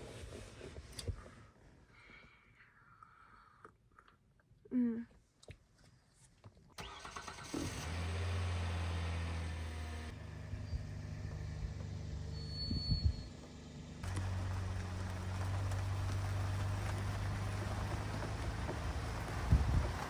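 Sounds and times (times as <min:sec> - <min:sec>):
van engine and road hum: 0:06.8 - 0:20.0.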